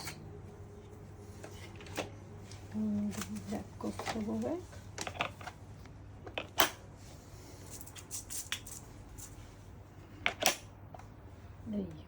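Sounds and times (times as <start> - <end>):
plastic parts clicking and knocking: 4.9 - 5.6, 6.2 - 6.8, 10.2 - 11.0.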